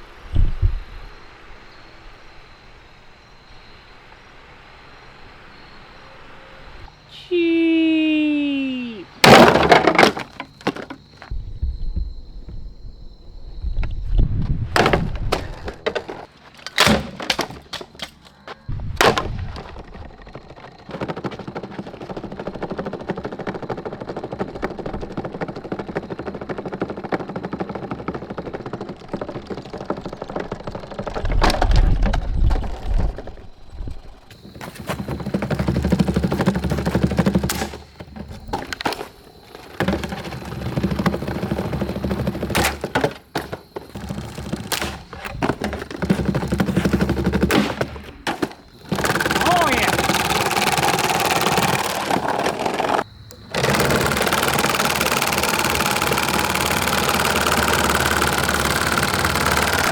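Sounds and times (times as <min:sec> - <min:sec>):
table fan being smashed: 0:09.2 - 0:10.9, 0:14.8 - 0:18.2
rapid continuous clatter: 0:19.7 - 0:31.6, 0:34.3 - 0:59.9.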